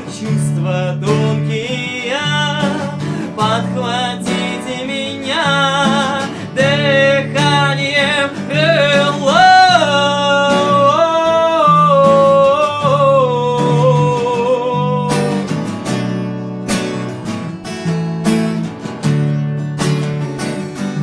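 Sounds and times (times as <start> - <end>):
man singing: 0.0 - 16.0
acoustic guitar strumming: 0.0 - 21.0.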